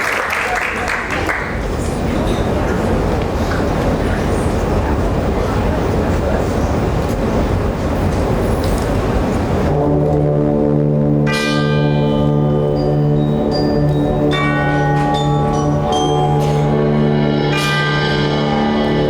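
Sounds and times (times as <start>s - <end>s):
band low sustained chord: 9.7s - 19.0s
struck bell tones: 11.2s - 19.0s.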